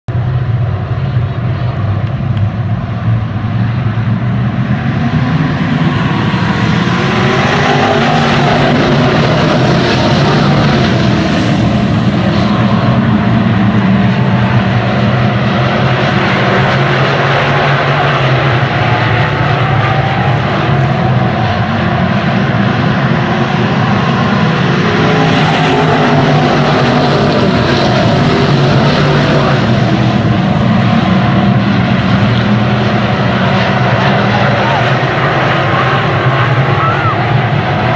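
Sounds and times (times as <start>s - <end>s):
race car engine droning: 0.1s - 37.9s
road and wind noise: 0.1s - 37.9s.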